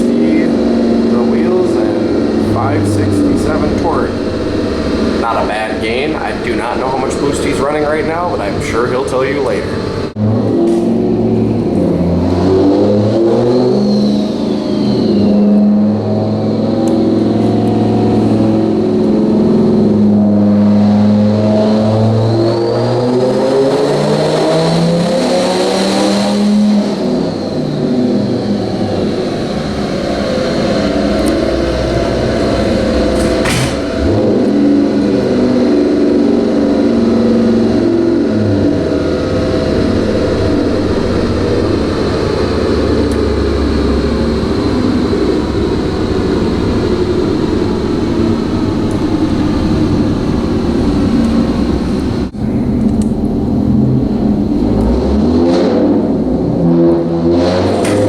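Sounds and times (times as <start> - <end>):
truck engine revving on dyno: 0.0 - 58.0
turbo whistle: 13.3 - 18.8
sharp crack: 33.0 - 34.3.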